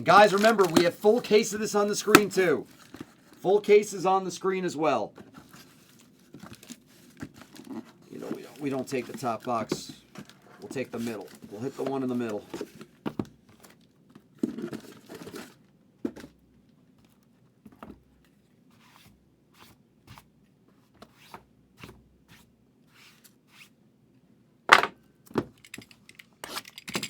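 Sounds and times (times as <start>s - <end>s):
plastic wrap tearing: 0.0s - 1.4s
cardboard rustling: 0.0s - 3.4s, 5.2s - 13.8s.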